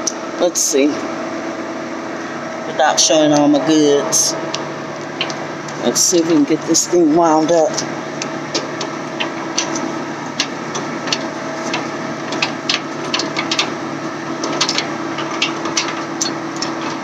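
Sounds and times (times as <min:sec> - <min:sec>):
engine hum: 0:00.0 - 0:17.0
crank clicks and knocks: 0:08.2 - 0:17.0.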